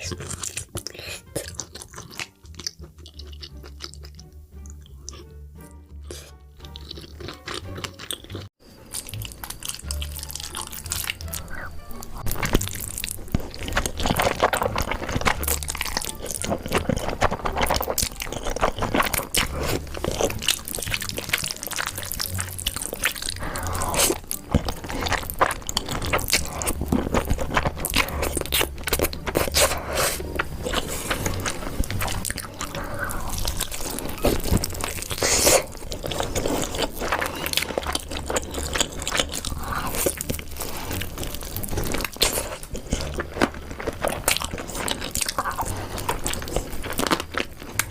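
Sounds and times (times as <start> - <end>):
person chewing and crunching food: 0.0 - 47.9.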